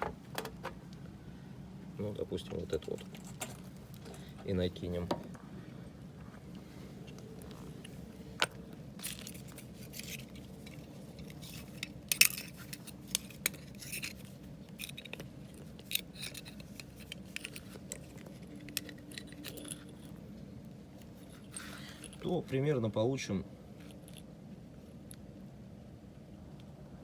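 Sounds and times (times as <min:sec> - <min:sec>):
metal parts clinking and scraping: 0:02.5 - 0:04.8, 0:07.8 - 0:20.3, 0:21.0 - 0:22.6.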